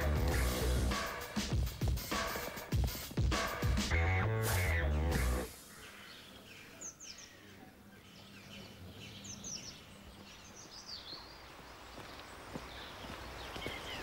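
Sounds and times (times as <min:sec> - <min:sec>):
background music: 0:00.0 - 0:05.6
small birds chirping: 0:05.2 - 0:14.0.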